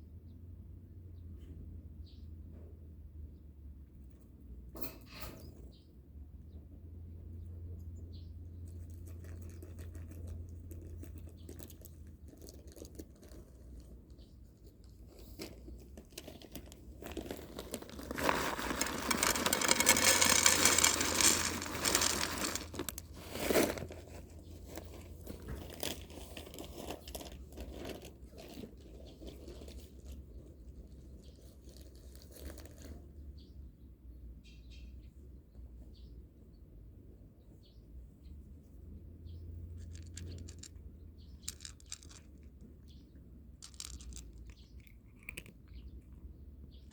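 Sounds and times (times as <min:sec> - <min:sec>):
crinkling rustling: 0:14.8 - 0:30.2, 0:41.4 - 0:42.6, 0:43.6 - 0:45.8.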